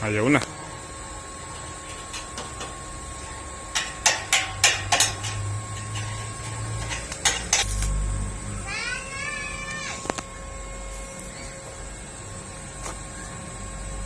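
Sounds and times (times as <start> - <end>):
low hum: 0.0 - 14.0
hammer striking metal: 3.7 - 6.1.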